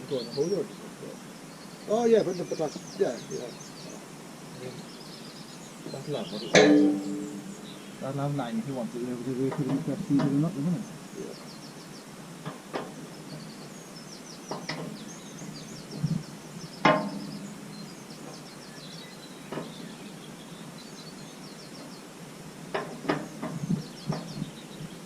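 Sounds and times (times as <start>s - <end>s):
small birds trilling: 0.0s - 25.0s
hand tools knocking: 6.4s - 7.8s, 9.5s - 10.5s, 16.8s - 17.3s.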